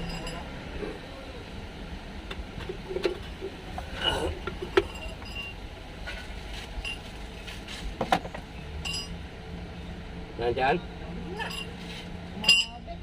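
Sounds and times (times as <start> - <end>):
tools clinking on engine metal: 0.0 - 0.5, 8.8 - 9.2, 11.4 - 11.8, 12.4 - 12.8.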